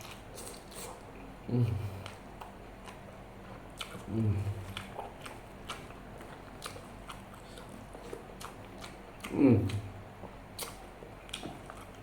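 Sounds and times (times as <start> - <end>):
chewing and wet mouth clicks: 3.8 - 12.0.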